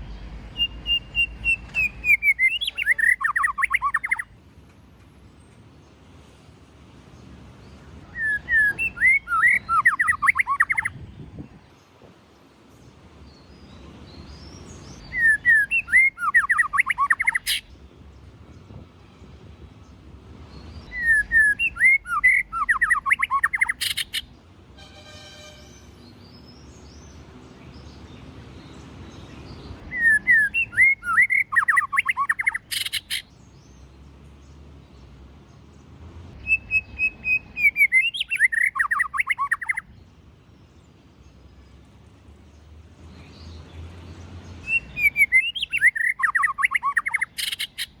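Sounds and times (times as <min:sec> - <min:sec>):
bird singing whistled notes: 0:00.5 - 0:04.3, 0:08.1 - 0:11.3, 0:13.3 - 0:17.7, 0:20.7 - 0:24.3, 0:29.1 - 0:33.4, 0:36.4 - 0:40.0, 0:44.4 - 0:48.0.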